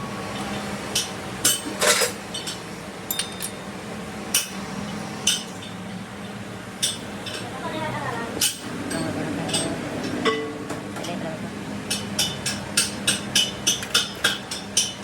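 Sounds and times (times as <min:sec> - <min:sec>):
metal tools clinking: 0:01.0 - 0:03.6.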